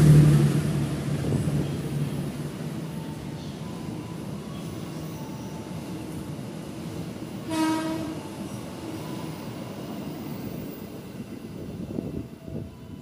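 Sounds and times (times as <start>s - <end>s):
train carriages rumbling past: 0.0s - 13.0s
train horn blast: 7.4s - 8.3s.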